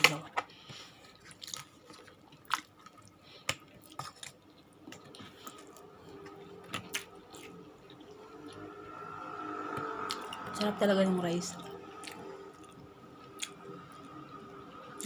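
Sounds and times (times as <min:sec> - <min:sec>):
chewing and wet mouth noises: 0:00.5 - 0:08.7, 0:09.7 - 0:10.6, 0:11.6 - 0:14.3.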